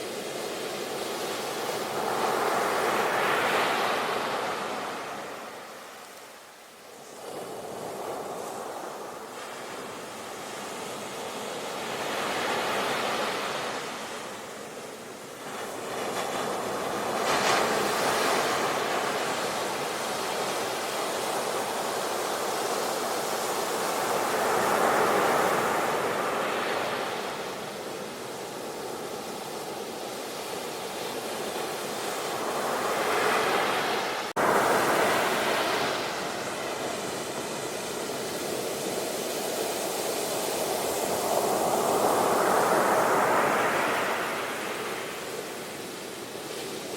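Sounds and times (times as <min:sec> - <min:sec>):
sea waves washing onto shore: 0:00.0 - 0:46.9.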